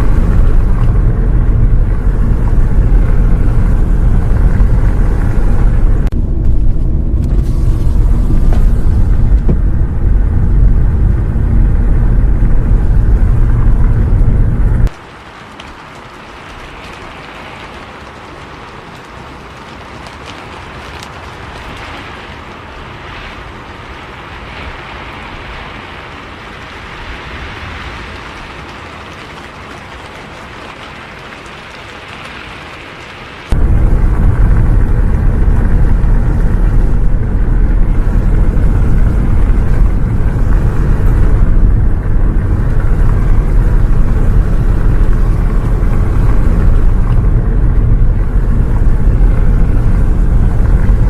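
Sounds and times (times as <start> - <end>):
bus rumble from inside: 0.0 - 14.9, 33.5 - 51.0
rain hiss: 0.0 - 51.0.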